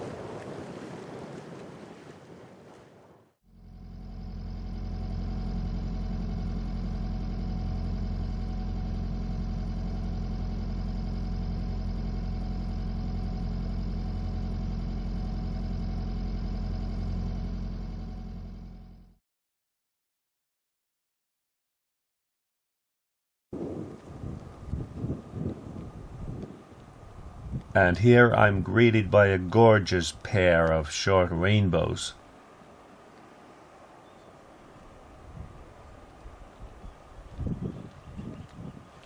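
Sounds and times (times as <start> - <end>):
wind: 0.0 - 18.0, 23.6 - 39.0
water noise: 0.0 - 18.2, 23.6 - 39.0
boat diesel engine droning: 3.4 - 19.2, 24.4 - 38.2.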